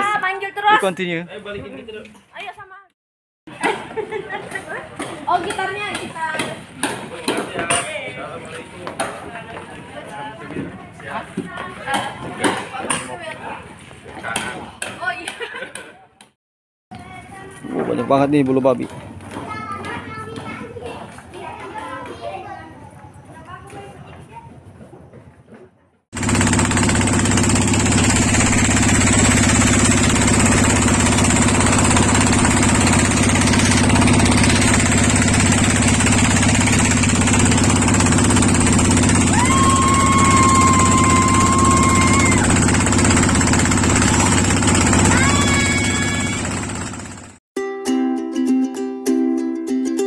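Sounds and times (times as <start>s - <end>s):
engine running with whine: 26.2s - 47.4s.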